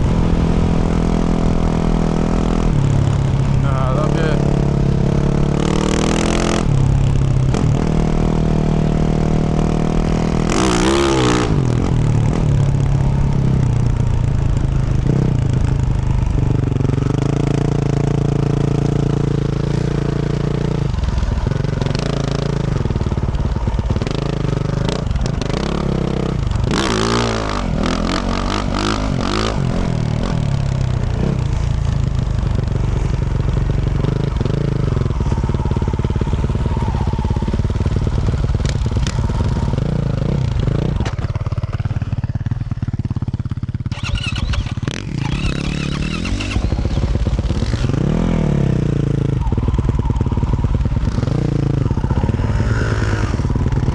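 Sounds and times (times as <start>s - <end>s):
motorcycle engine revving: 0.0s - 53.9s
motorcycle knocks and rattles: 30.5s - 48.2s.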